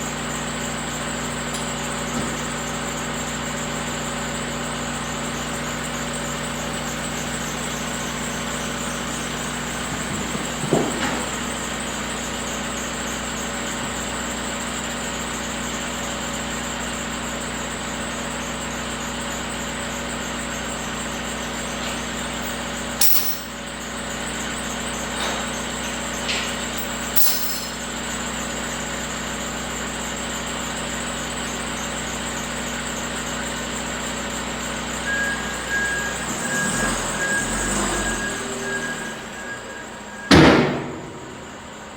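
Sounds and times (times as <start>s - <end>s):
engine idling: 0.0s - 41.9s
metallic tool clanks: 22.5s - 23.6s, 26.8s - 27.8s.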